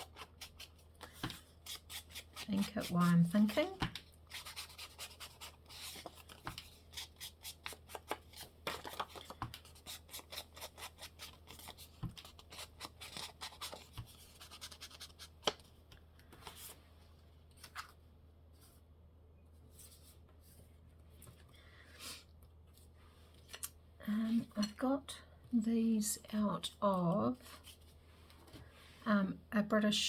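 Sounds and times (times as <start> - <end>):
scissors snipping paper: 0.0 - 15.2
paper rustling: 0.0 - 16.8.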